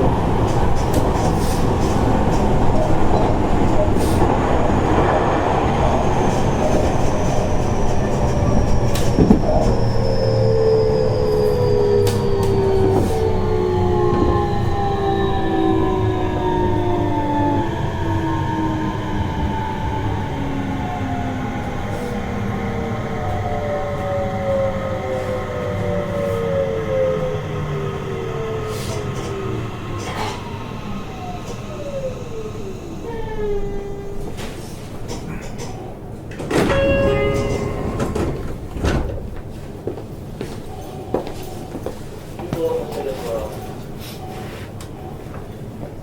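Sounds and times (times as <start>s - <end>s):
train wheels rumbling on rail: 0.0s - 46.0s
click: 12.0s - 12.6s.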